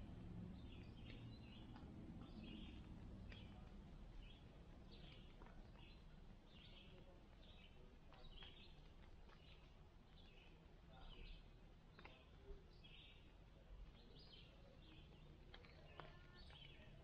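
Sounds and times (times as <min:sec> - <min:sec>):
outdoor background hush: 0:00.0 - 0:17.0.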